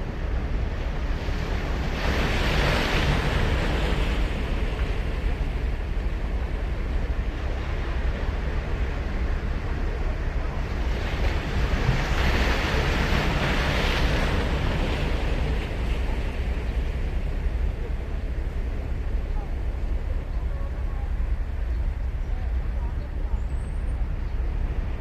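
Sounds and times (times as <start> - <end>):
waves washing on sand: 0.0 - 22.8
wind rumble on microphone: 0.0 - 25.0.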